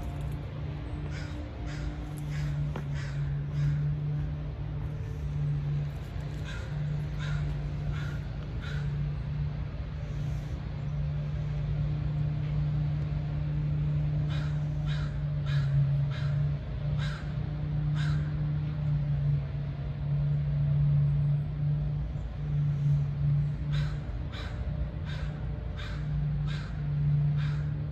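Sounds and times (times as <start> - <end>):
steady low hum: 0.0 - 27.9
crow cawing: 1.0 - 4.1, 6.4 - 9.0, 14.3 - 17.3, 17.9 - 18.4, 23.7 - 27.8.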